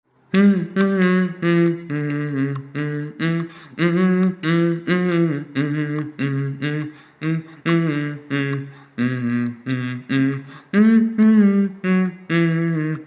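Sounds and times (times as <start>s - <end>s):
hummed vocal melody: 0.3s - 13.0s
light ticking beat: 0.4s - 9.9s.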